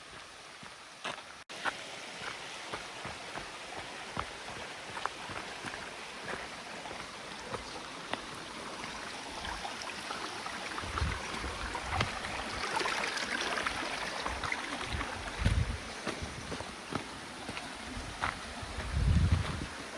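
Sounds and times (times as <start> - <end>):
flowing water rushing: 0.0 - 19.9
wind buffeting microphone: 10.7 - 12.6, 14.3 - 16.7, 17.8 - 19.9.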